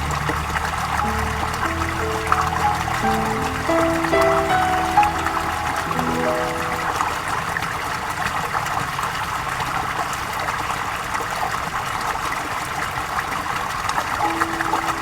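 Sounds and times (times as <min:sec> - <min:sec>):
piano notes: 0:00.0 - 0:09.0, 0:14.2 - 0:15.0
flowing water: 0:00.0 - 0:15.0.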